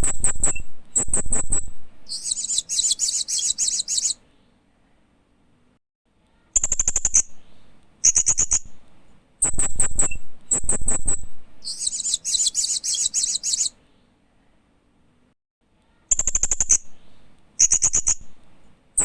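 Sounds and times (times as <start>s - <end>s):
parrot chirping: 1.5s - 4.2s, 9.5s - 13.8s.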